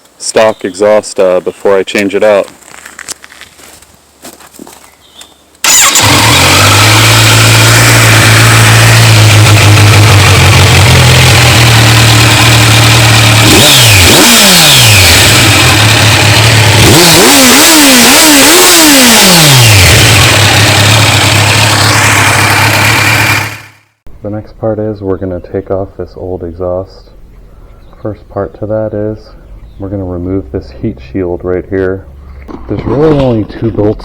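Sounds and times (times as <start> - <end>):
motorcycle engine idling and revving: 5.6 - 24.0, 29.4 - 34.0.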